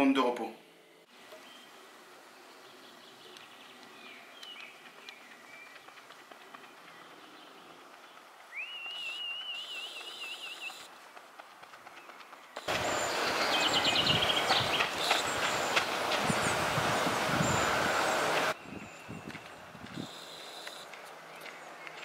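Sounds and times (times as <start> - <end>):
birds chirping: 0.8 - 11.1, 11.7 - 22.0
bird singing a trilling high note: 8.5 - 10.9.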